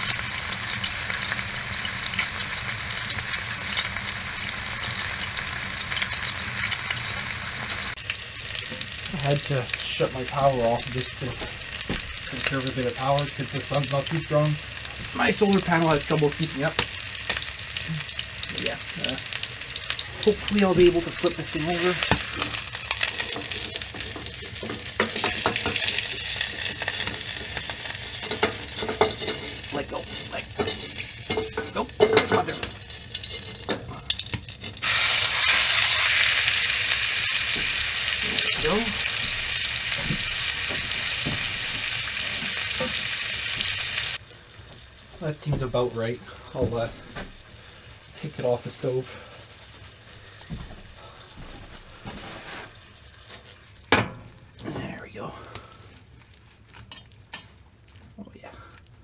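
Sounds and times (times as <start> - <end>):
steak sizzling in a pan: 0.0 - 45.2.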